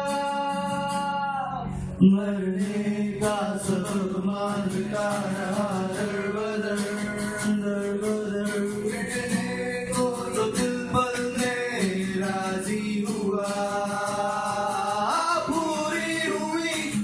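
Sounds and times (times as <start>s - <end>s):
guitar: 0.0s - 17.0s
man singing long gliding notes: 0.0s - 17.0s.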